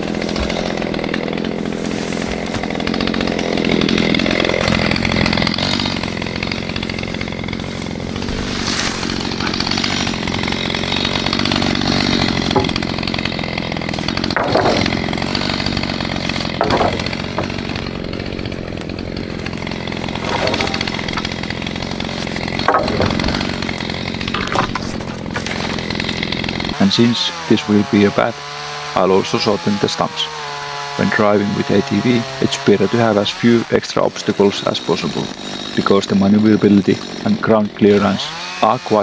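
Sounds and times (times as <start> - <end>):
chainsaw cutting: 0.0 - 39.0
short sharp knocks: 11.7 - 13.3.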